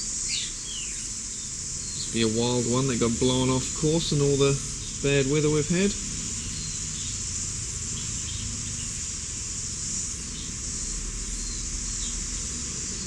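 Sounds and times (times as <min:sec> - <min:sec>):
faint bird chirps: 0:00.0 - 0:07.2
high-pitched insect chorus: 0:00.0 - 0:13.0
low background rumble: 0:00.6 - 0:13.0.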